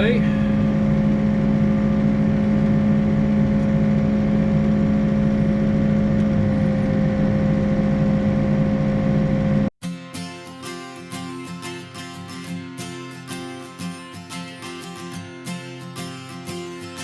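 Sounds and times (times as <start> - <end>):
diesel engine running: 0.0 - 9.7.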